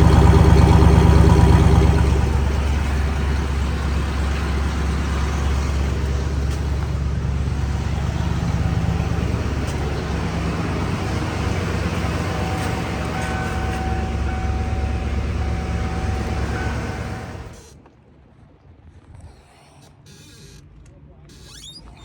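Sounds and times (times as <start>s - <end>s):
pickup truck engine idling: 0.0s - 17.6s.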